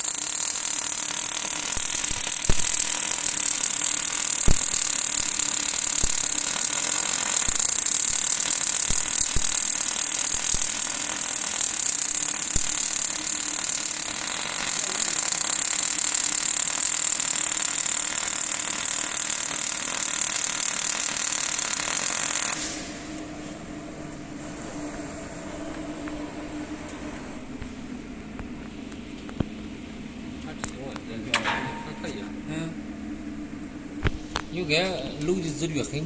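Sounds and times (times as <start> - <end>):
welding arc crackling: 0.0 - 23.2
low hum: 22.6 - 36.0.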